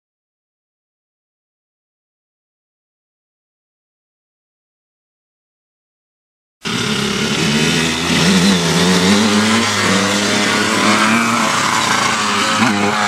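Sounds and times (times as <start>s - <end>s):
dirt bike engine revving: 6.6s - 13.0s.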